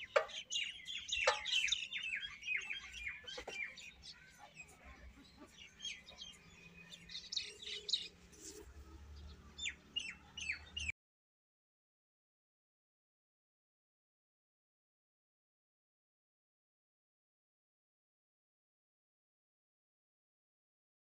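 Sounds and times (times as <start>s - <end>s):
birds chirping: 0.0s - 10.9s.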